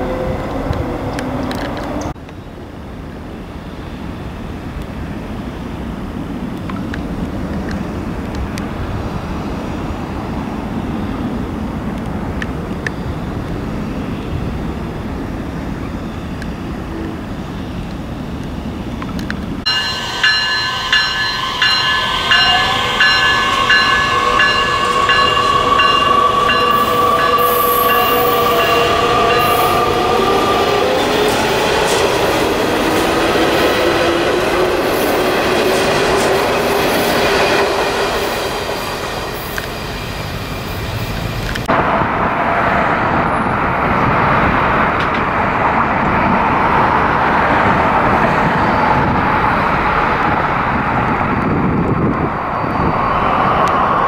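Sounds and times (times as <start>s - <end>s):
train wheels on rails: 0.0s - 54.0s
distant rushing noise: 19.6s - 54.0s
train motor whine: 19.7s - 35.2s.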